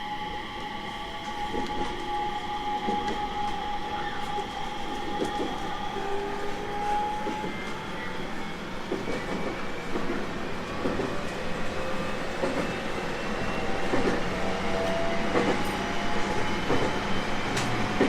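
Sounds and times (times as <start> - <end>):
electric train running rumble: 0.0 - 18.0.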